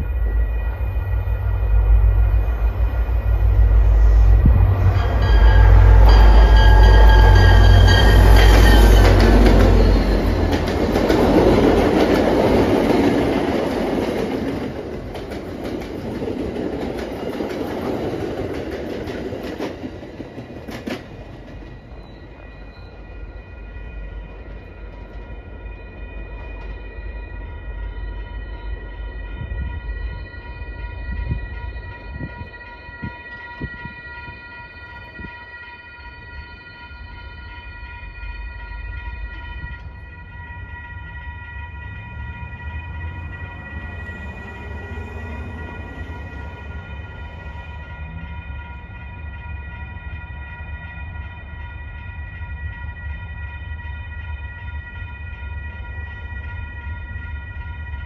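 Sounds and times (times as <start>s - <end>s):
train horn blast: 0.0s - 10.7s, 29.3s - 58.0s
train wheels on rails: 0.0s - 35.6s.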